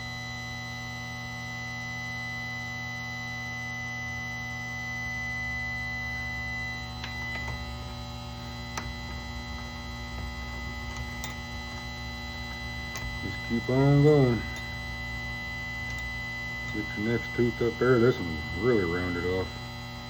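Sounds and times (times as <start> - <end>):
grinding wheel motor humming: 5.0 - 20.0.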